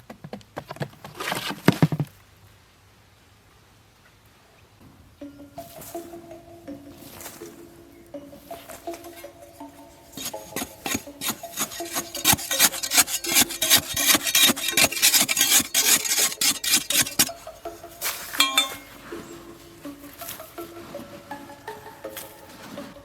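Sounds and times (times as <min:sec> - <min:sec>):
quiet background music: 0:04.6 - 0:23.0
rasping scraping strokes: 0:05.6 - 0:23.0.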